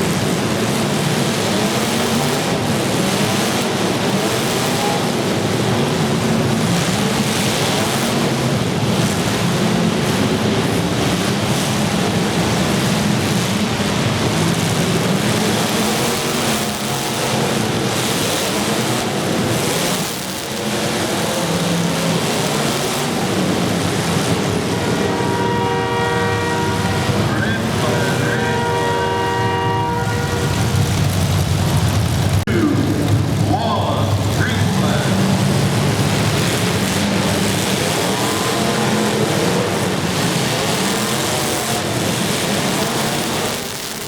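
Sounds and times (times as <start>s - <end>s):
car engines revving: 0.0s - 44.0s
car horn: 24.1s - 31.0s.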